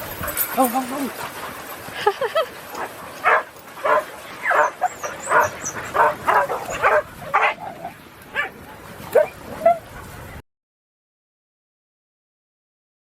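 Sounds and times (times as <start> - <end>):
puppies barking and yipping: 0.0 - 10.4.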